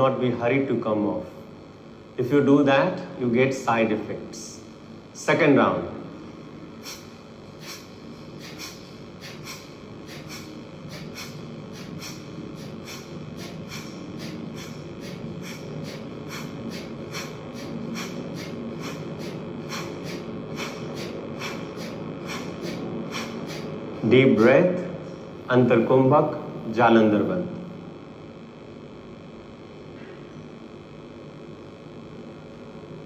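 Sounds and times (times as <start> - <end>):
forceful nasal exhalations: 6.8 - 23.7.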